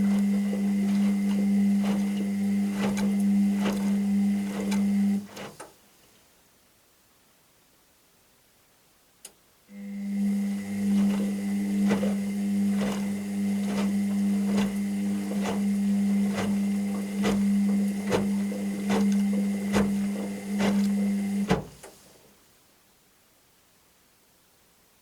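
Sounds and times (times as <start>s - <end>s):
washing machine drum humming: 0.0s - 5.6s, 9.8s - 22.0s
drum tapping as it turns: 10.9s - 21.9s
washing machine click: 11.0s - 22.0s.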